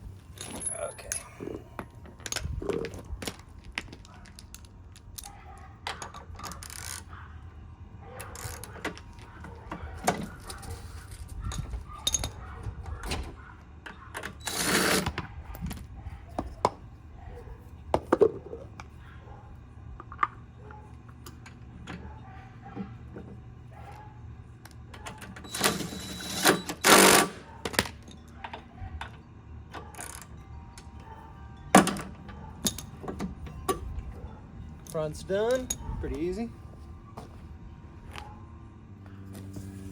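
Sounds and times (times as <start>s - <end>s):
clicks and knocks of wheels: 0.2s - 7.2s, 8.1s - 16.9s, 19.9s - 35.9s
rattling bursts: 25.3s - 28.4s.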